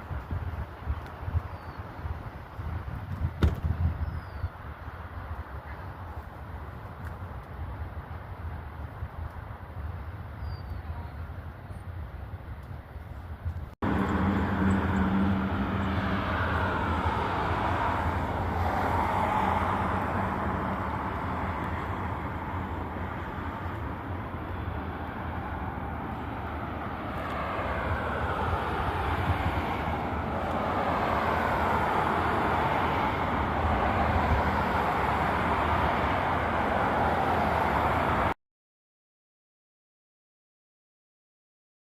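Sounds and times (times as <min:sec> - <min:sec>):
wind rush on microphone: 0:00.0 - 0:38.3
motorcycle engine hum: 0:13.8 - 0:18.7.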